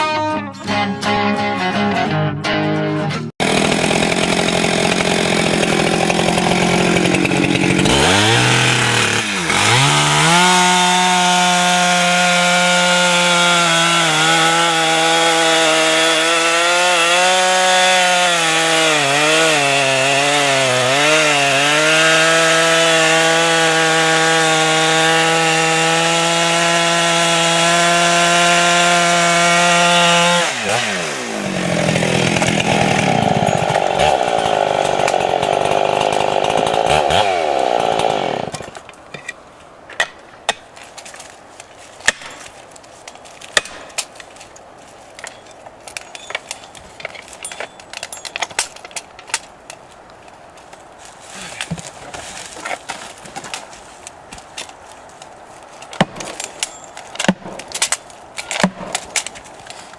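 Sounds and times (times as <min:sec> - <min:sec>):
chainsaw revving: 0:03.4 - 0:38.6.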